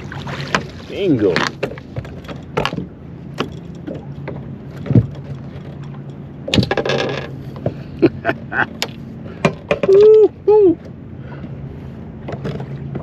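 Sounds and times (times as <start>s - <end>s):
water splash: 0.0s - 2.0s
knocks and clicks in a boat: 0.0s - 13.0s.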